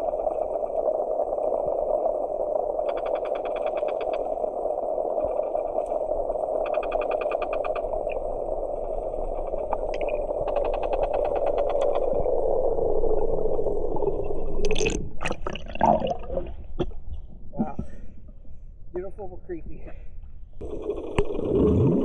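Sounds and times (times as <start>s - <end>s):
rapid underwater clicking pulses: 0.0s - 12.3s
underwater low wash: 0.0s - 22.0s.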